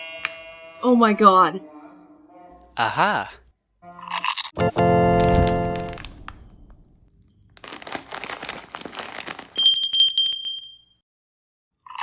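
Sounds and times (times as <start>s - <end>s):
plastic wrapper crinkling: 5.2s - 6.5s, 7.3s - 9.7s.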